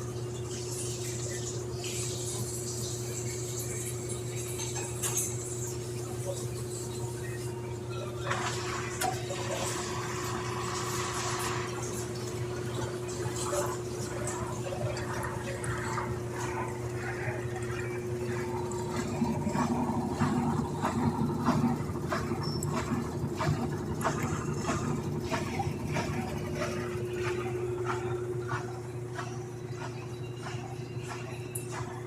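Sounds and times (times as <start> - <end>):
washing machine humming: 0.0 - 32.0
water sloshing: 11.1 - 29.2.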